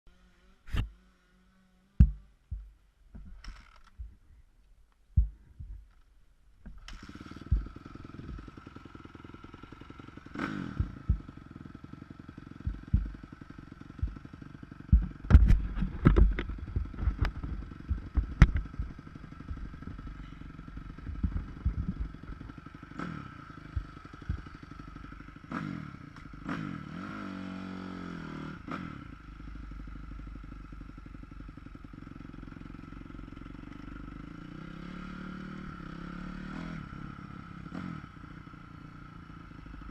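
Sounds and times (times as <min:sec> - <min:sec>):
dirt bike engine drone: 0:00.1 - 0:04.4, 0:05.1 - 0:39.9
sharp knocks and clatters: 0:02.0 - 0:04.2, 0:12.6 - 0:13.3, 0:14.9 - 0:24.7.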